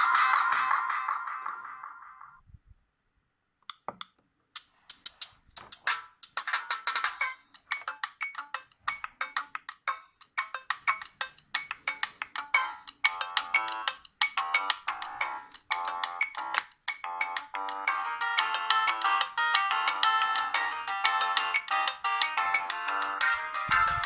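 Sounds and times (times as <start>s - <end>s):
fast electronic tune: 22.8s - 24.0s.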